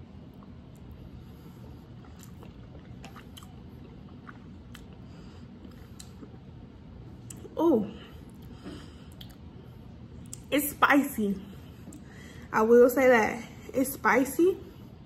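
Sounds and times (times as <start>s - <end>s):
low hum: 0.0s - 15.0s
wet mouth clicks: 2.0s - 5.0s, 5.6s - 6.4s, 7.2s - 7.5s, 9.1s - 9.5s.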